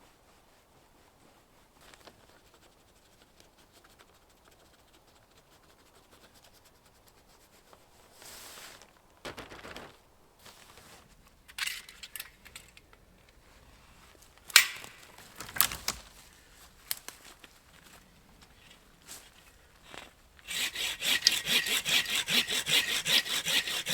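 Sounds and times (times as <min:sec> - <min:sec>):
tape crinkling and handling: 0:14.4 - 0:20.6.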